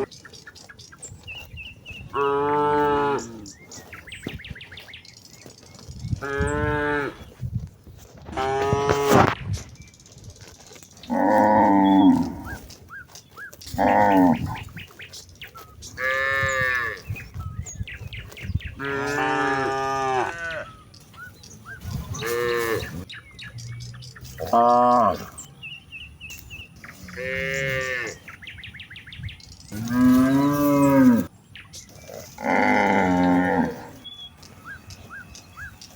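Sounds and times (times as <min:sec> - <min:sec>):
cows mooing: 0:01.9 - 0:04.3, 0:06.1 - 0:07.3, 0:08.2 - 0:09.4, 0:11.0 - 0:12.7, 0:13.6 - 0:15.1, 0:15.8 - 0:17.4, 0:18.6 - 0:20.8, 0:21.7 - 0:23.2, 0:24.2 - 0:25.5, 0:26.8 - 0:28.4, 0:29.7 - 0:31.3, 0:31.9 - 0:35.9.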